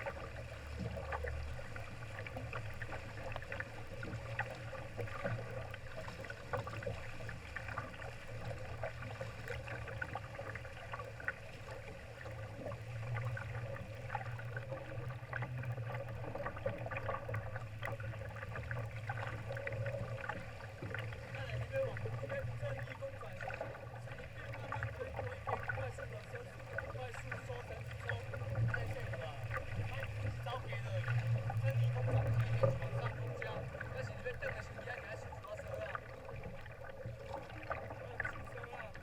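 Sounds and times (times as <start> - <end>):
water splashing against a boat hull: 0.0 - 39.0
steady low rumble: 12.6 - 39.0.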